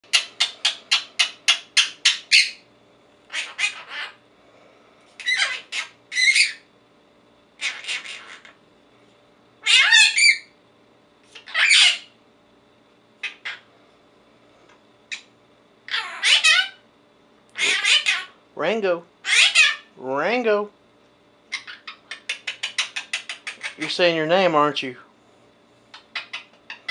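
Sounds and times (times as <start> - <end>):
parrot squawking and chirping: 0.0 - 2.6, 3.3 - 4.2, 5.2 - 6.7, 7.6 - 8.6, 9.6 - 10.6, 11.2 - 12.2, 13.2 - 13.7, 15.9 - 16.8, 17.6 - 18.4, 19.2 - 19.9, 21.5 - 24.0, 25.9 - 26.9.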